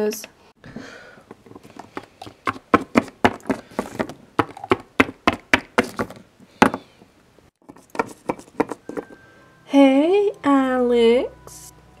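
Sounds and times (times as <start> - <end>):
plastic figurines tapping: 1.3 - 6.8, 7.6 - 9.2.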